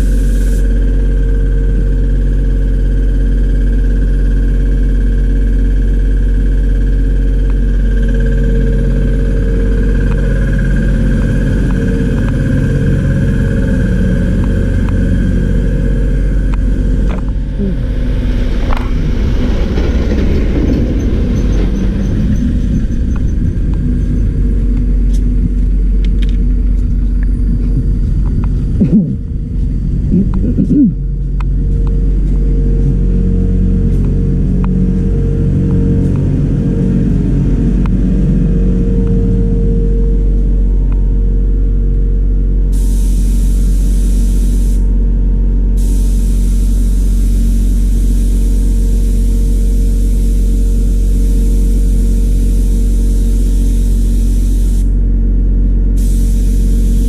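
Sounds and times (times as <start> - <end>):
rough hissing noise: 0.0 - 0.8, 42.7 - 44.9, 45.7 - 55.0, 55.9 - 57.0
machine humming: 0.0 - 57.0.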